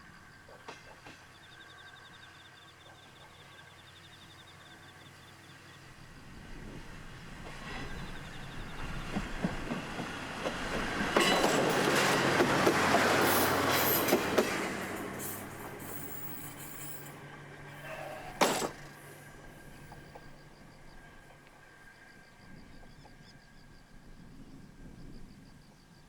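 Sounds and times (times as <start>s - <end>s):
diesel railcar rumbling past: 0.0s - 25.7s
wheels clicking over rail joints: 7.3s - 21.6s.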